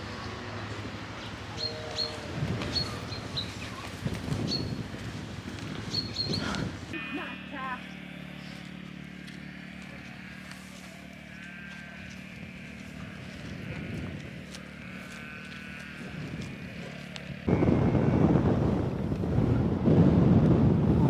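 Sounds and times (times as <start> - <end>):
wind buffeting microphone: 0.0 - 7.0, 11.9 - 21.0.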